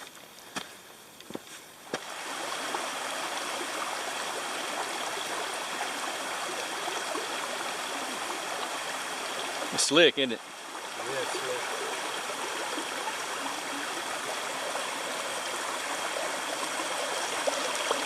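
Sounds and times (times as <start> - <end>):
footsteps on trail: 0.0 - 2.1
stream rushing over rocks: 1.8 - 18.0.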